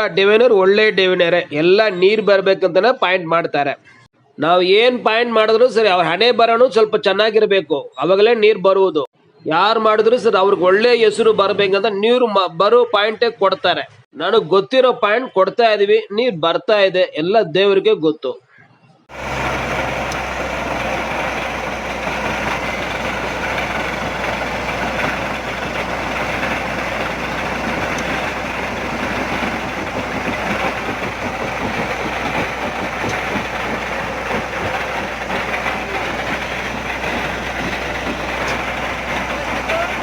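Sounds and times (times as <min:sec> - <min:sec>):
heavy engine running: 0:19.1 - 0:40.0.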